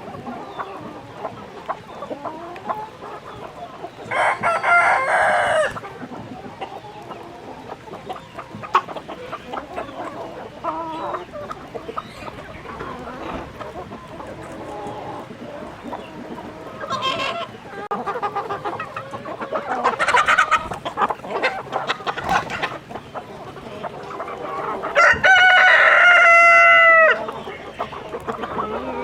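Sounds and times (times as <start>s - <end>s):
chickens clucking: 0.0s - 29.0s
rooster crowing: 4.1s - 5.7s, 25.0s - 27.2s.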